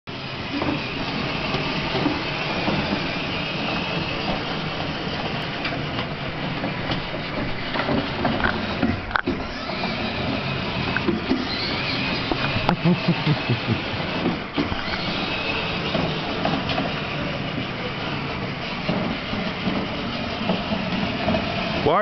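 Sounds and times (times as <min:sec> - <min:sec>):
toy wheels rumbling on ground: 0:00.1 - 0:22.0
electric motor whine: 0:06.5 - 0:21.8.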